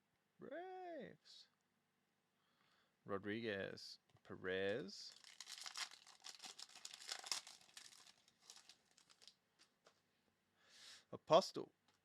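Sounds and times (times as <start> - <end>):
cards and packaging crinkling: 4.6 - 10.0.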